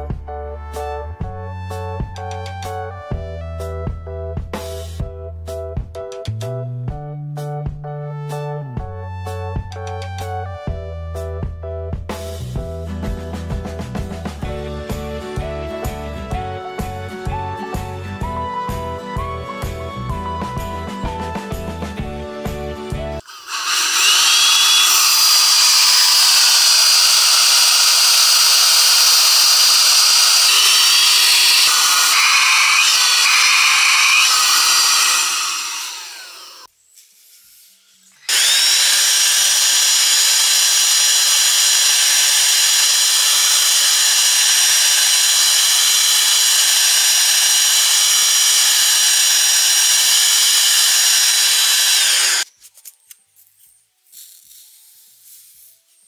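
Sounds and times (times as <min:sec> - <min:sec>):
vacuum motor whining: 0:23.2 - 0:36.7, 0:38.2 - 0:52.5.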